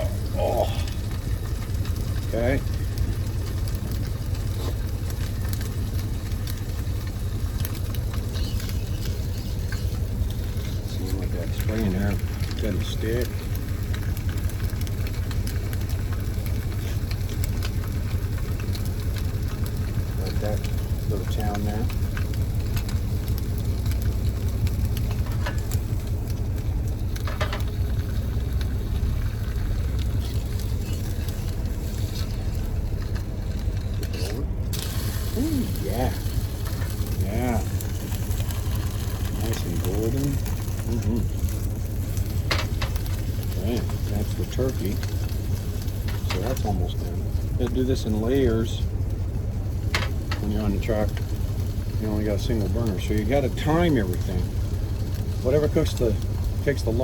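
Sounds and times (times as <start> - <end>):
steady low rumble: 0.0 - 57.0
truck engine idling: 0.0 - 57.0
meat sizzling in a pan: 34.7 - 48.8.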